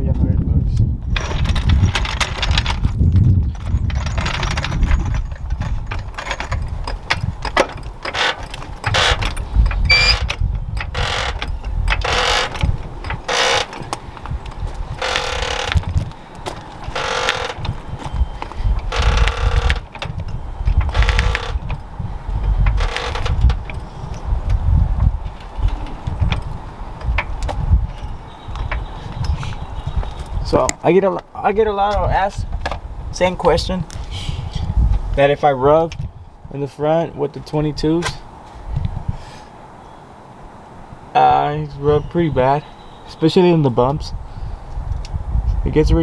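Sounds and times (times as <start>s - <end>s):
floor jack being pumped: 7.0s - 20.2s, 20.8s - 21.8s.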